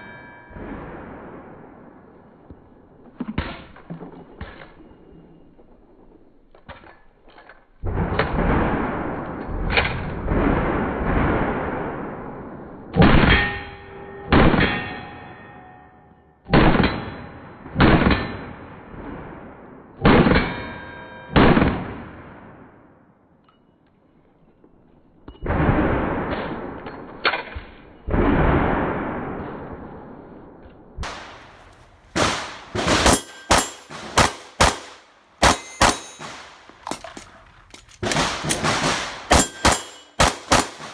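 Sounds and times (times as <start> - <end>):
slowed pistol shots booming: 28.1 - 40.9
metal sign ringing: 32.5 - 37.1, 38.4 - 40.9.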